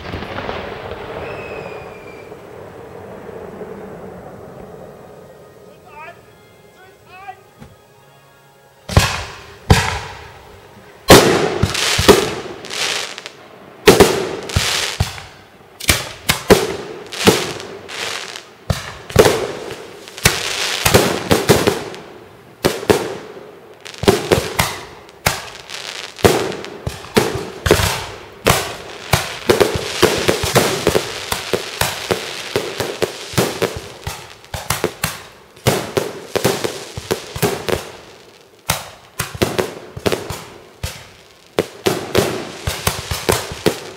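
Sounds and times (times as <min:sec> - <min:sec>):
firework crackling: 0:00.0 - 0:07.5, 0:08.8 - 0:43.9
firework shells bursting: 0:23.9 - 0:43.9.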